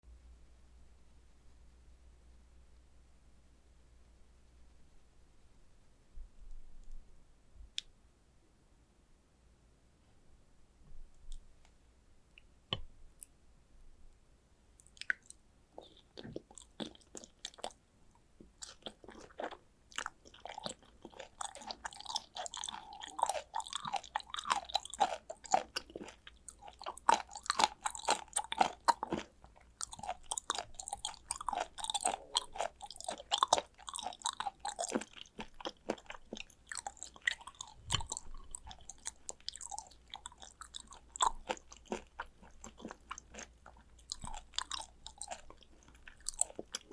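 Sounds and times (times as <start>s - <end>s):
wet chewing mouth clicks: 14.8s - 17.8s, 18.6s - 46.9s.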